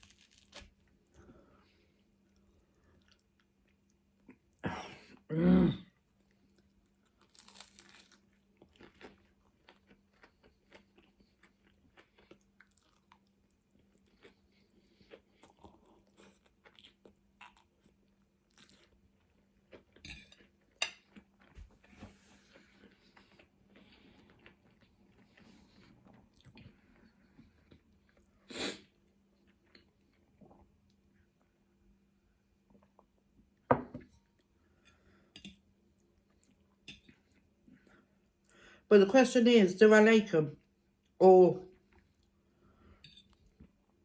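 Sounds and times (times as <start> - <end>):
chewing and crunching food: 0.0 - 4.6, 6.0 - 31.6.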